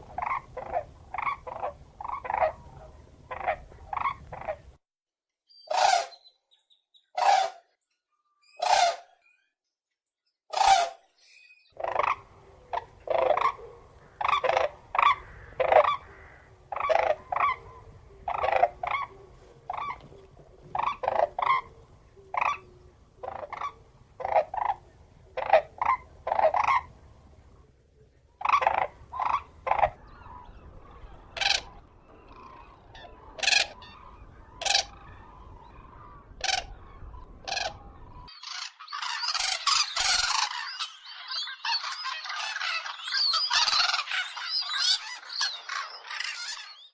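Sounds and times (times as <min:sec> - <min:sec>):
cranes calling: 0:11.8 - 0:20.1, 0:28.4 - 0:46.9
faint low rumble: 0:11.8 - 0:38.3.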